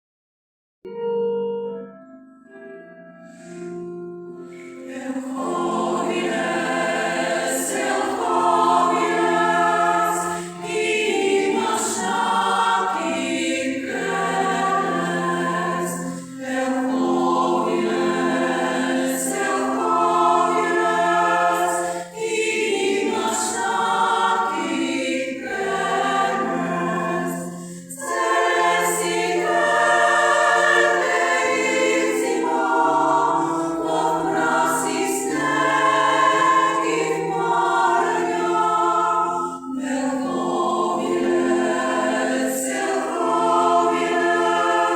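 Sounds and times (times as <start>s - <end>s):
choir singing: 3.2s - 44.9s.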